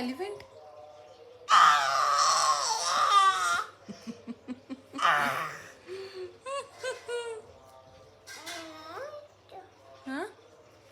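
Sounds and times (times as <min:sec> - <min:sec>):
baby squealing: 0:01.5 - 0:03.8.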